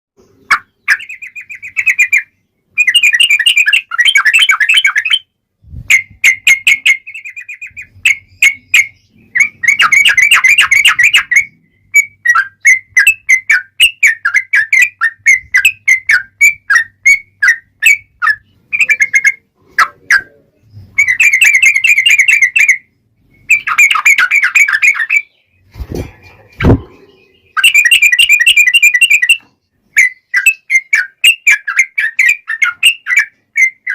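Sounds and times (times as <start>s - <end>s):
bulbul singing: 0.2s - 33.9s
low thuds: 25.7s - 27.2s.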